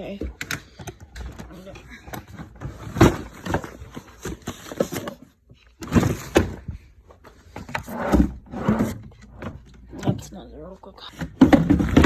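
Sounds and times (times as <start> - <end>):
clicks and knocks of handling: 0.2 - 6.6.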